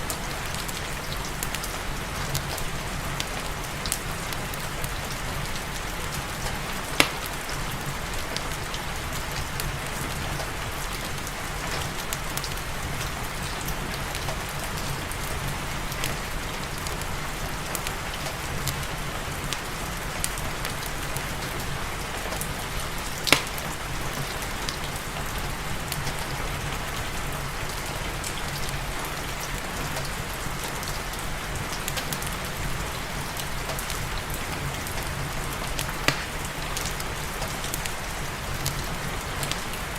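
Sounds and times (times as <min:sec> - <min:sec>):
steady rain hiss: 0:00.0 - 0:39.9
loud pops: 0:07.0 - 0:07.4, 0:23.3 - 0:23.6, 0:36.1 - 0:36.4.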